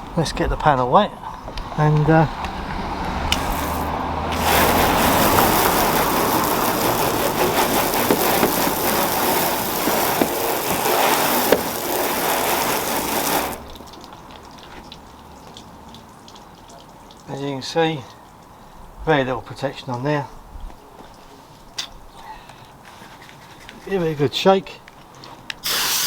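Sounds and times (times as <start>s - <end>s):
hose spraying water on car: 3.0s - 15.0s, 25.6s - 26.0s
faint dripping: 8.2s - 22.8s, 24.7s - 25.7s.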